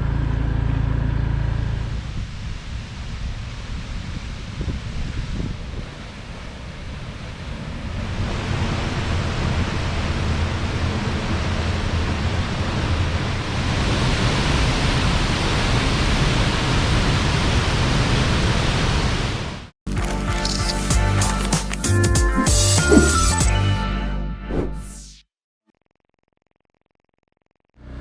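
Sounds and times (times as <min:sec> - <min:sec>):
music: 0:19.9 - 0:25.3.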